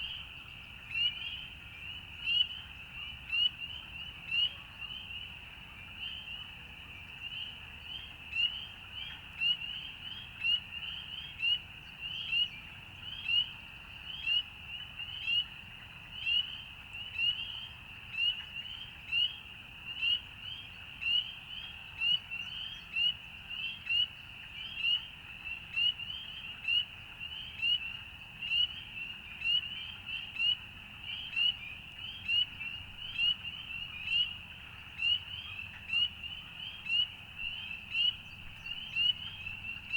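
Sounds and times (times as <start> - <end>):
frogs calling: 20.9 - 39.9.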